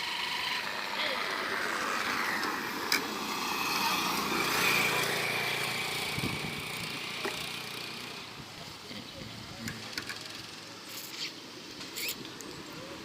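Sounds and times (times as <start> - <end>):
small engine running: 0.0 - 8.3.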